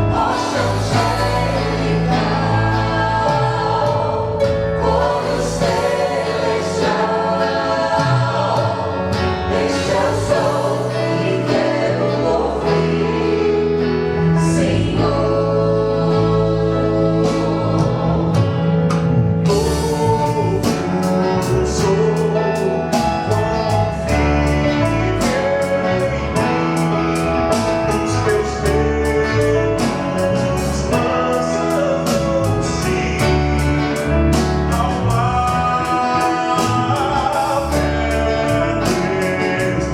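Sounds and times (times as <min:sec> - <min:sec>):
percussion: 0:00.0 - 0:13.2, 0:17.3 - 0:39.9
bass: 0:00.0 - 0:39.9
vocal group singing in harmony: 0:00.0 - 0:39.9.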